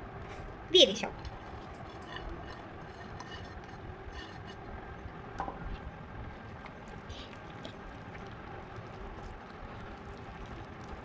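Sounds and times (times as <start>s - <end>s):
batter squishing in a bowl: 1.2s - 4.8s, 6.4s - 11.0s.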